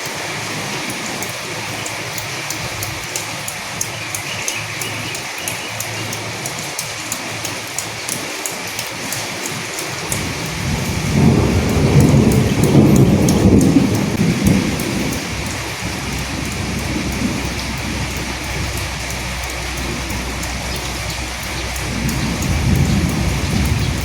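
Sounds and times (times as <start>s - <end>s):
drops ticking on a surface: 0.0s - 24.0s
steady rain: 0.0s - 24.0s
thunder rumbling: 10.0s - 24.0s.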